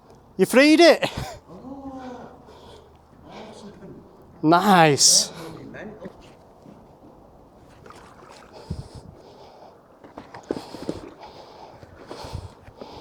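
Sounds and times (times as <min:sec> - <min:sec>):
water splashing and dripping: 0:07.6 - 0:12.1.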